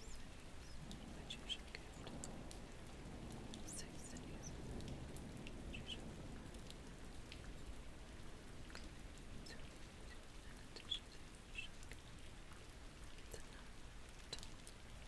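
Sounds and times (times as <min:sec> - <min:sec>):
faint clicks and ticks: 0:00.0 - 0:07.7, 0:13.0 - 0:14.9
soft low rumble: 0:00.0 - 0:12.1
steady rain: 0:00.0 - 0:15.0.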